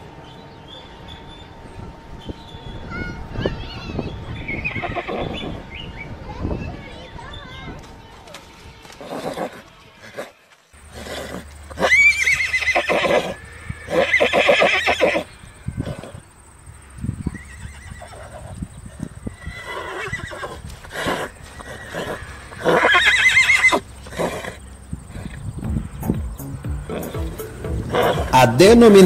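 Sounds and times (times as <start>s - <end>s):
horse whinnying: 4.7s - 5.5s, 10.9s - 16.3s, 17.3s - 18.6s, 19.3s - 25.4s, 27.9s - 28.4s.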